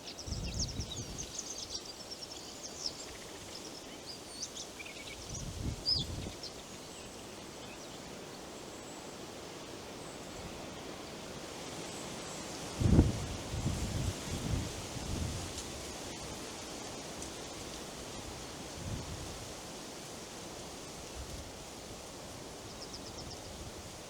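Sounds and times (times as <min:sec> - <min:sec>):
small birds chirping: 0:00.0 - 0:09.0, 0:22.6 - 0:23.6
wind in leaves: 0:00.0 - 0:24.0.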